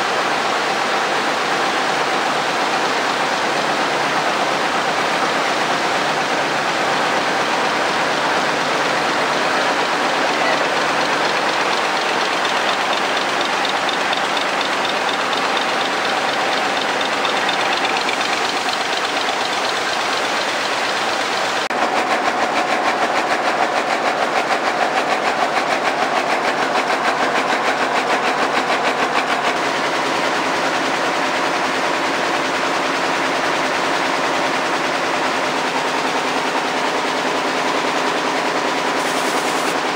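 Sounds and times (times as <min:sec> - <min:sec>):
weaving looms clattering: 0:00.0 - 0:39.9.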